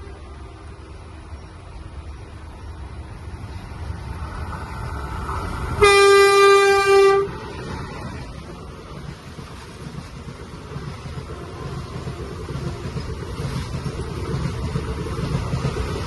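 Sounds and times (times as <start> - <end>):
train rumbling: 0.0 - 16.0
locomotive air horn blast: 5.8 - 7.4.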